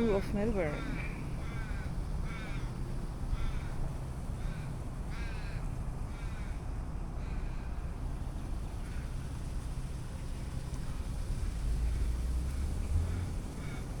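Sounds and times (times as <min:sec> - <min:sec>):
raven cawing: 0:00.0 - 0:08.0, 0:13.1 - 0:14.0.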